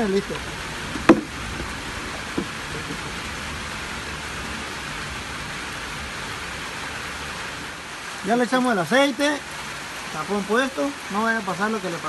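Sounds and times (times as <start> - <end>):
heavy rain hissing: 0.0 - 12.0
brief knock: 1.0 - 1.3.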